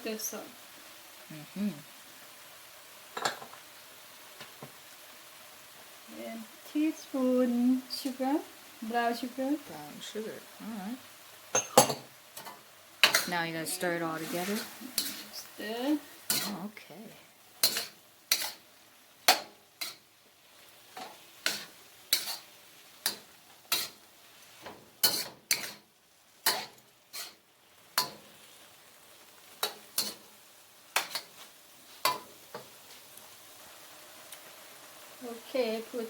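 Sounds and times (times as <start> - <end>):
faint sizzling: 0.0 - 36.0
utensil scraping a frying pan: 11.6 - 16.7, 17.6 - 18.7, 19.3 - 20.1, 20.9 - 28.6, 29.6 - 30.3.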